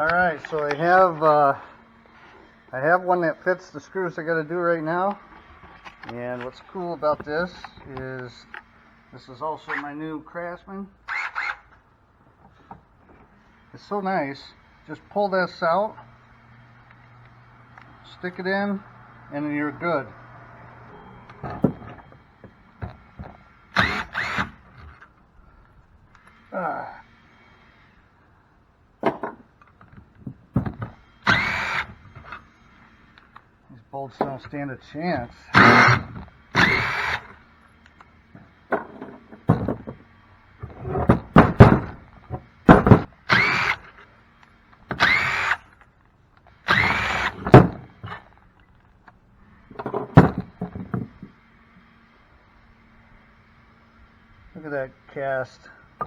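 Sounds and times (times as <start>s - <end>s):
power drill motor whining: 0.0s - 11.8s, 12.5s - 28.5s, 29.6s - 33.5s, 34.1s - 56.0s
wrench scraping squeal: 9.2s - 10.0s, 35.4s - 37.3s.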